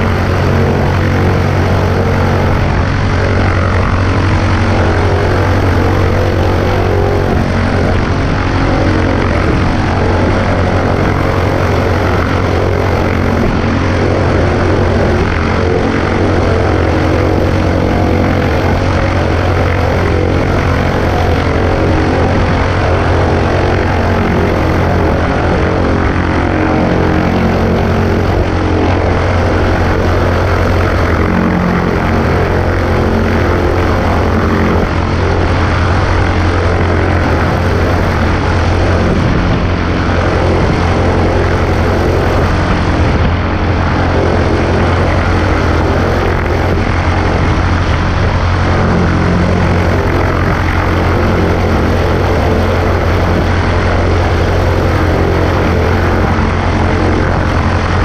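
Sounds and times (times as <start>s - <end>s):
propeller plane engine drone: 0.0s - 58.0s
wind rush: 0.0s - 58.0s.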